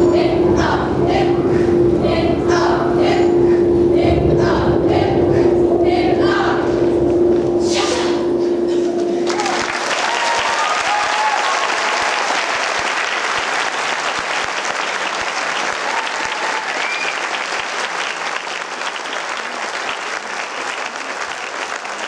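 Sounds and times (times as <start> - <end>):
audience applauding: 9.2 - 22.0
calls from the crowd: 9.2 - 22.0.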